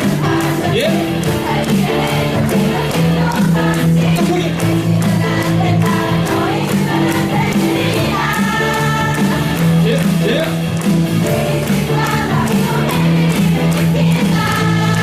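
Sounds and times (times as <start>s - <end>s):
live pop music: 0.0s - 15.0s
voices singing: 0.0s - 15.0s.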